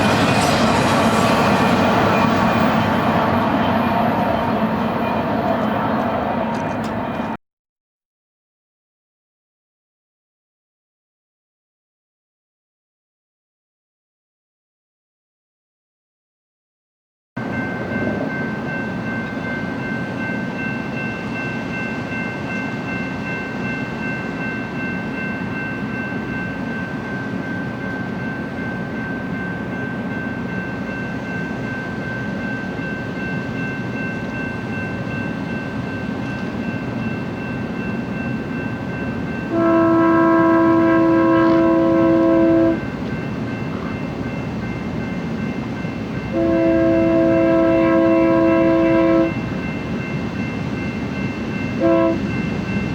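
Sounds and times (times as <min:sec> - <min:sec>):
freight train rumbling by: 0:00.0 - 0:07.4, 0:17.4 - 0:52.9
locomotive air horn: 0:39.5 - 0:42.8, 0:46.3 - 0:49.4, 0:51.8 - 0:52.3.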